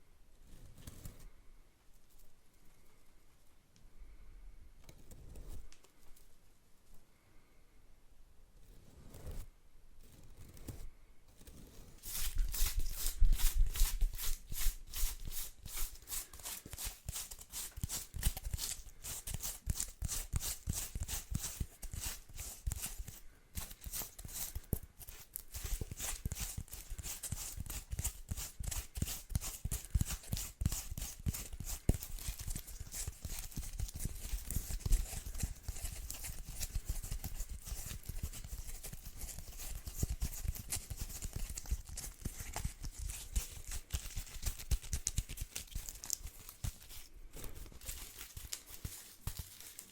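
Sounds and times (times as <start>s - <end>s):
broom bristles rustling: 12.0s - 17.4s.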